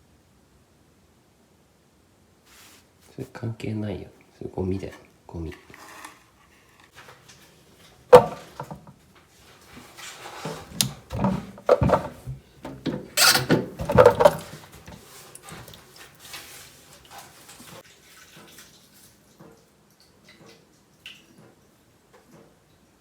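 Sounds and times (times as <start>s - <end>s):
rustling: 2.5s - 3.4s, 4.8s - 17.8s
clattering knocks: 8.1s - 8.9s, 10.4s - 15.0s
objects knocking when set down: 8.1s - 9.0s, 10.4s - 15.0s.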